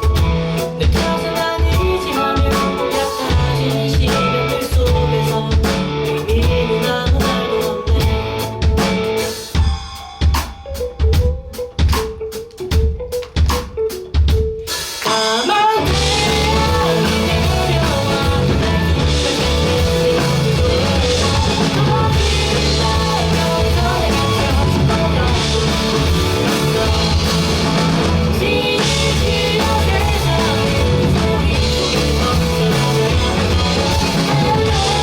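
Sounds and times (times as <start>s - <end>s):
live rock band playing: 0.0s - 35.0s.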